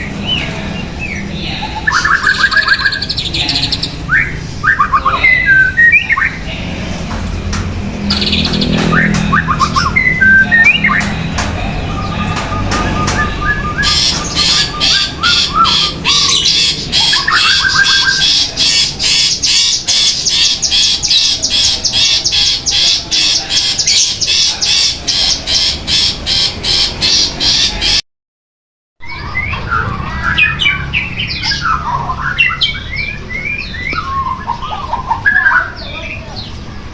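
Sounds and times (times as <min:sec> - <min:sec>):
songbird whistled song: 0:00.0 - 0:06.6, 0:07.5 - 0:28.0, 0:29.0 - 0:36.7
songbird harsh repeated notes: 0:00.0 - 0:28.0.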